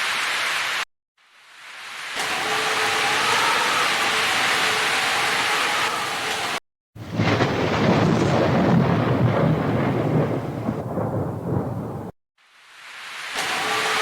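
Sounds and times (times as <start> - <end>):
steady rain hissing: 0.0 - 8.0, 8.6 - 14.0
rolling thunder rumble: 7.0 - 12.2.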